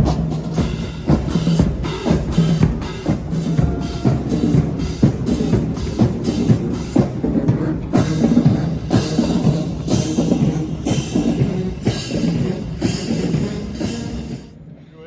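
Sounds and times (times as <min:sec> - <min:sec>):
marching band playing: 0:00.0 - 0:14.7.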